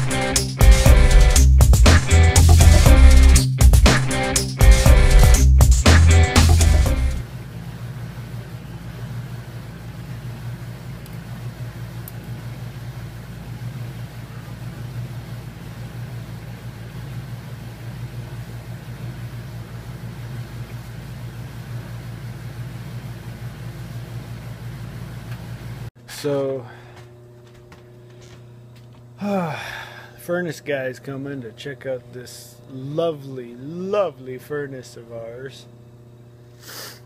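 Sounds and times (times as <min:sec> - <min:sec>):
music: 0:00.0 - 0:07.2
low machine hum: 0:06.1 - 0:36.6.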